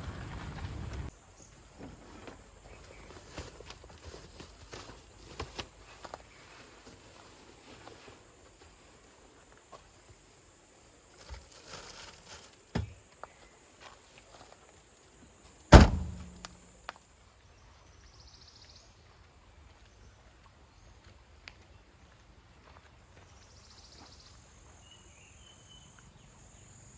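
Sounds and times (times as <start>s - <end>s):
loud sharp thump with ring: 15.7s - 16.5s.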